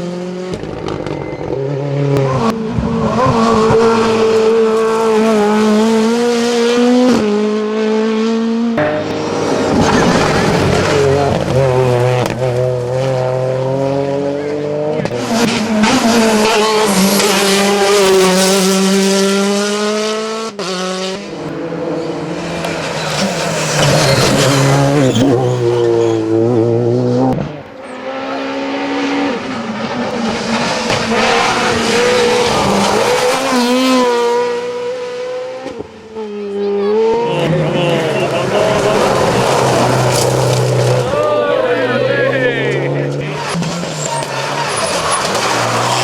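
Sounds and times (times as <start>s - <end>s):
rally car engines revving: 0.0s - 46.0s
tyre squeal: 22.6s - 26.5s, 43.3s - 46.0s.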